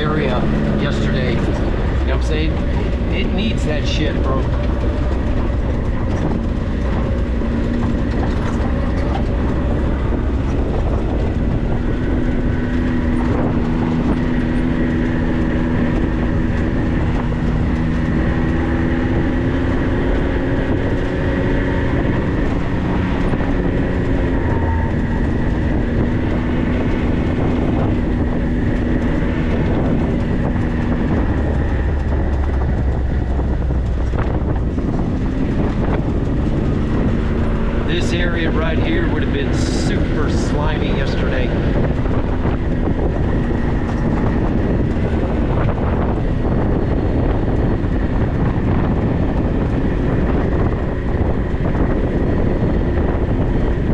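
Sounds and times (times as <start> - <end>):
engine and tyres rumbling on dirt: 0.0 - 53.9.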